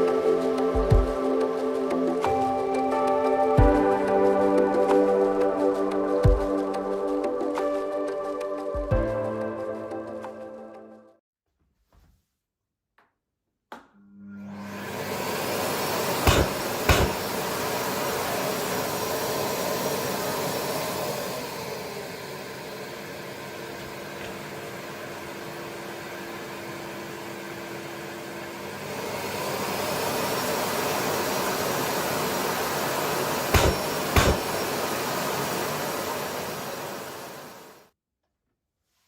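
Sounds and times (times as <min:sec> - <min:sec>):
vacuum cleaner motor running: 0:14.1 - 0:37.8.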